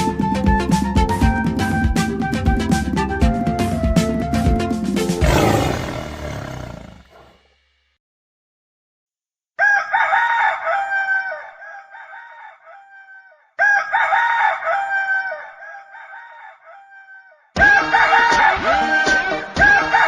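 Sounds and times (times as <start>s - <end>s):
music: 0.0s - 5.2s, 17.6s - 20.0s
rooster crowing: 5.2s - 7.0s, 9.6s - 19.1s, 19.7s - 20.0s.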